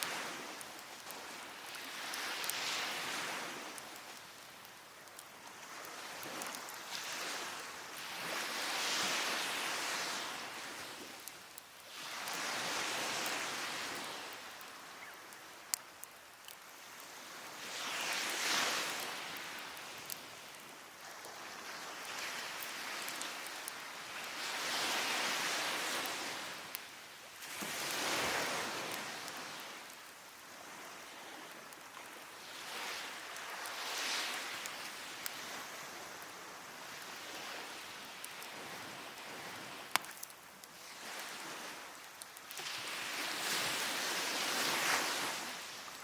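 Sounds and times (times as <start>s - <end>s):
surf washing up beach: 0.0s - 46.0s
wood fire crackling: 0.0s - 46.0s
firewood popping: 39.8s - 40.9s.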